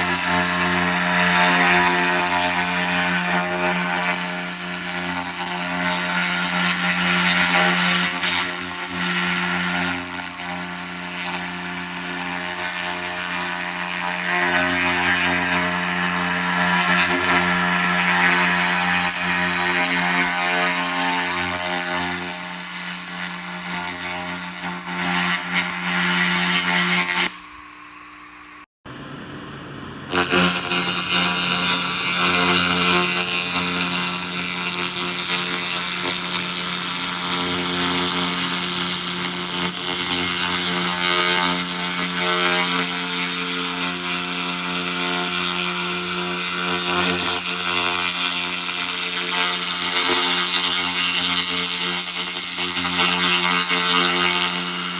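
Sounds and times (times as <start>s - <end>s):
laser hiss-crackle on metal: 0.0s - 27.3s, 29.0s - 54.9s
machine hum: 24.4s - 35.0s.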